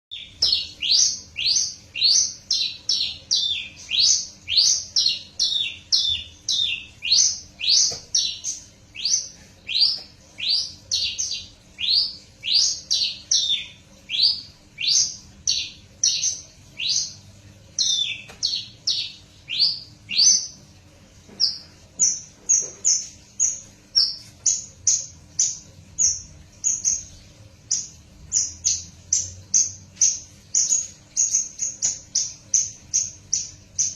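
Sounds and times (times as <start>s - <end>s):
bird whistling song: 0.1s - 17.2s, 17.8s - 20.6s.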